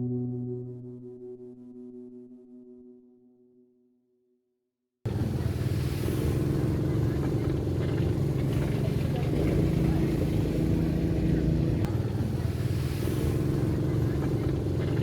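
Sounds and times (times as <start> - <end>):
vehicle engine humming: 5.1 - 15.0.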